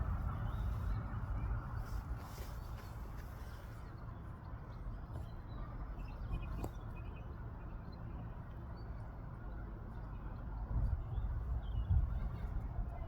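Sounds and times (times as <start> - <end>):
low outdoor rumble: 0.0 - 7.8.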